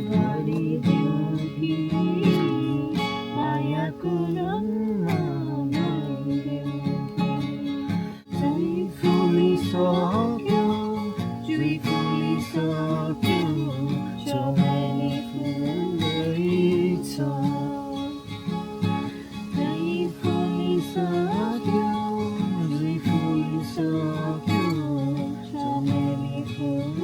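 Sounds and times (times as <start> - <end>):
acoustic guitar music: 0.0 - 27.0.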